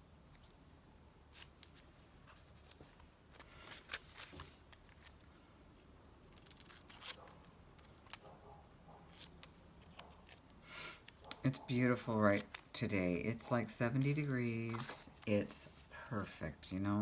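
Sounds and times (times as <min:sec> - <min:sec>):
paper rustling: 0:01.3 - 0:05.3, 0:06.3 - 0:08.4, 0:09.1 - 0:16.4.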